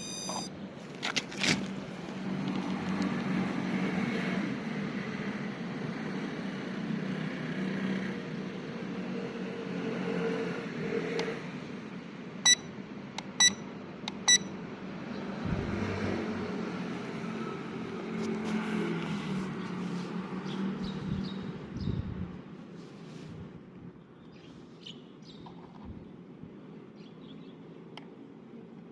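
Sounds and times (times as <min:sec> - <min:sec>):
short high electronic beeps: 0:00.0 - 0:00.5, 0:12.5 - 0:12.7.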